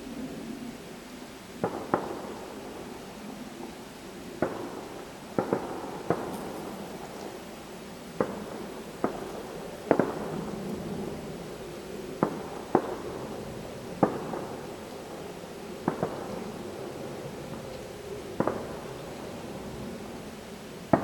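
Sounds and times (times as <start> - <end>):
fireworks booming: 4.4 - 7.2, 8.1 - 11.0, 12.2 - 14.8, 15.8 - 17.7, 18.4 - 20.0.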